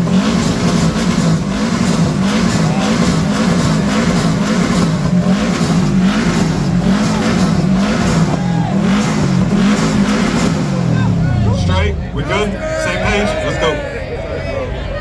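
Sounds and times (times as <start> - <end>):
car engine revving: 0.0 - 14.7.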